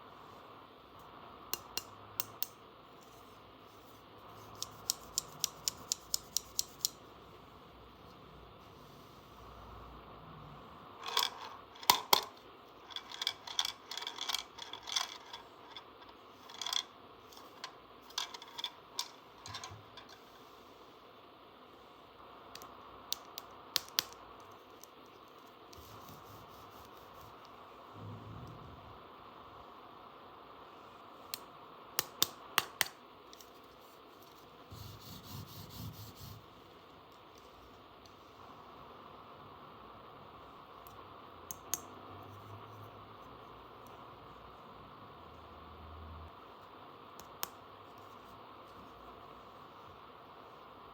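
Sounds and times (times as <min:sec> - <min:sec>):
toy pieces clicking and clattering: 0:12.9 - 0:15.4
sharp snaps: 0:31.3 - 0:33.0
soft rubbing: 0:33.5 - 0:36.7.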